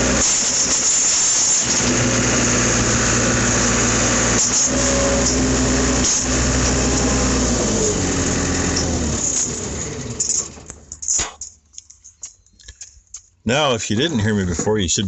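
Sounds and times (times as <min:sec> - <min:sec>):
vehicle engine running: 0:00.0 - 0:11.2.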